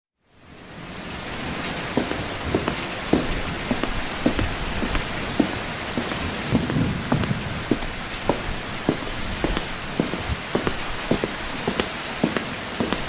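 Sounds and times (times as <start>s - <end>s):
steady rain falling: 0.2s - 13.0s
heavy drops knocking: 2.0s - 13.0s.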